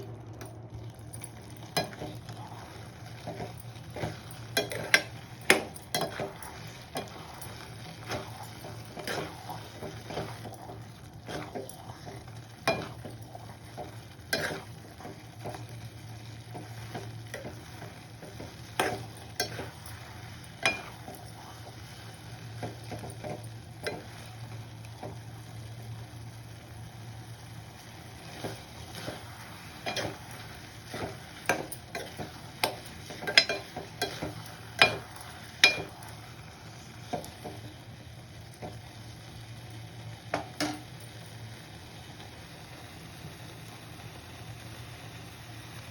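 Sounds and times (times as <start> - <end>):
steady low hum: 0.0 - 41.1
spoon stirring food in a pan: 0.4 - 25.9, 27.0 - 39.2, 40.3 - 41.2
spoon tapping against pan: 31.5 - 36.0, 40.3 - 40.9.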